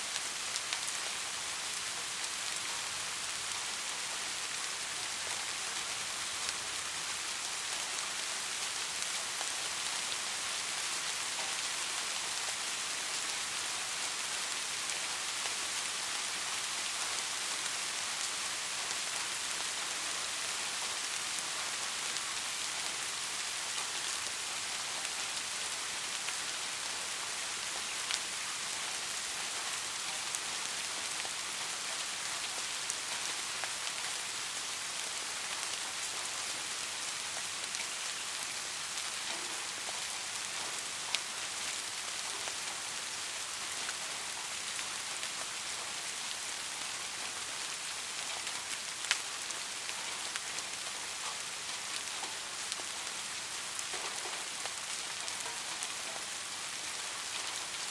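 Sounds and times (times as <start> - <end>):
steady rain hiss: 0.0 - 57.9
raindrop ticks: 39.2 - 41.2.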